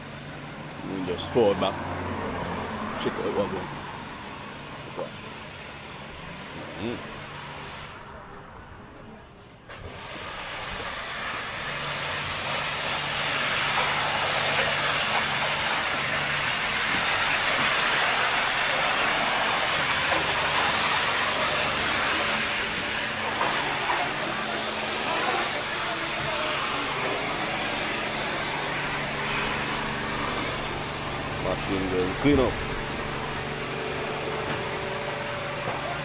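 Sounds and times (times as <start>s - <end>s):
pressure washer water jet hissing: 2.8s - 8.0s, 9.7s - 36.0s
pump motor humming: 9.7s - 36.0s.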